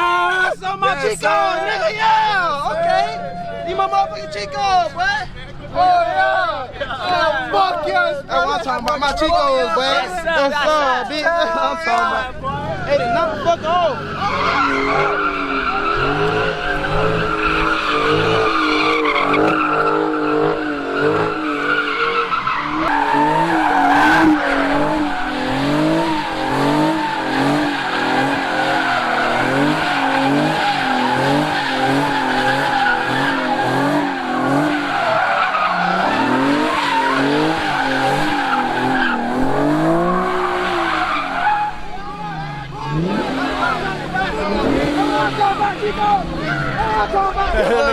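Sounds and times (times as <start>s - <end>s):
car tyres squealing: 0.0s - 47.9s
car engine revving: 11.9s - 47.8s.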